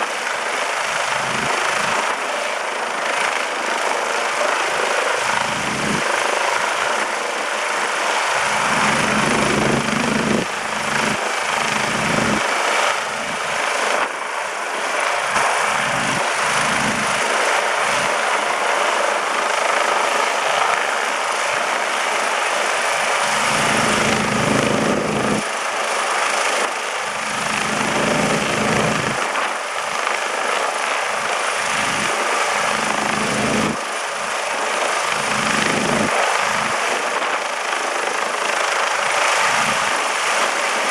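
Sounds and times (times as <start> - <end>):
helicopter rotor and engine: 0.0 - 40.9
wind buffeting microphone: 8.4 - 12.4, 23.3 - 25.4, 27.2 - 29.2.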